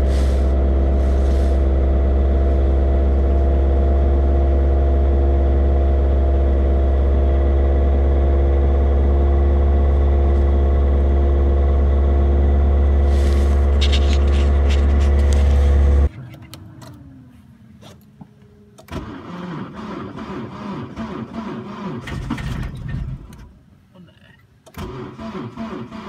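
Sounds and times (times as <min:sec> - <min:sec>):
car engine running: 0:00.0 - 0:17.9
car engine cranking: 0:12.6 - 0:17.1, 0:18.8 - 0:23.6, 0:24.6 - 0:26.0.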